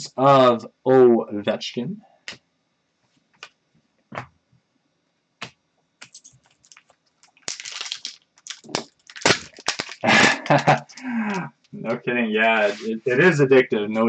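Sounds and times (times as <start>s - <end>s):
cards rustling: 6.0s - 11.5s.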